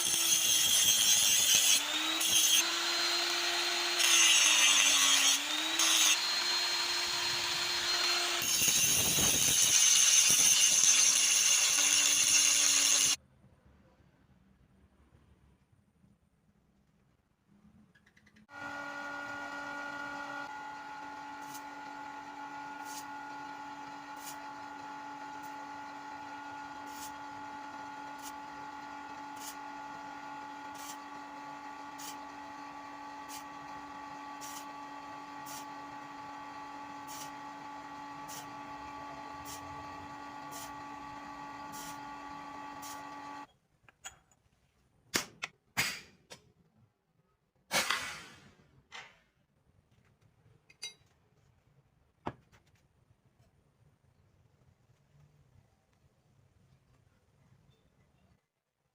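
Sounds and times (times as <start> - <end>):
small motor humming: 1.8 - 13.2, 18.5 - 43.5.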